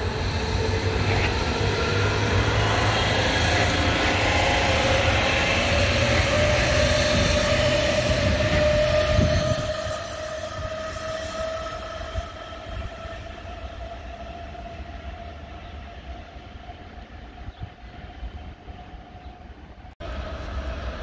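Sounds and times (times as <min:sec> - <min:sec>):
electric train motor whine: 0:00.0 - 0:16.3
rail rumble: 0:00.0 - 0:21.0.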